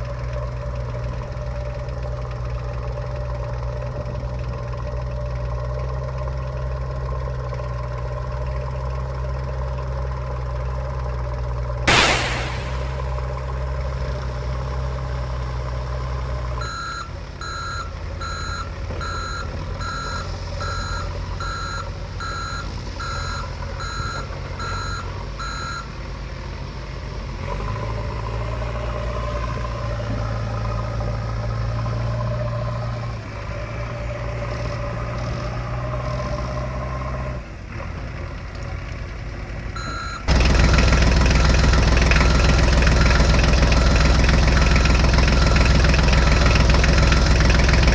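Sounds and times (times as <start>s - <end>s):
tractor engine running: 0.0s - 47.9s
reversing alarm beeping: 16.6s - 25.9s, 39.8s - 40.3s.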